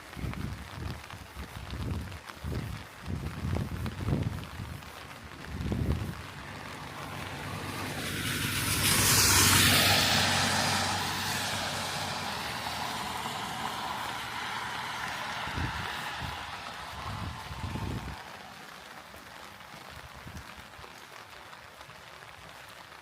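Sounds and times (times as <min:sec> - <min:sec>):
tyre hiss on wet road: 0:00.0 - 0:23.0.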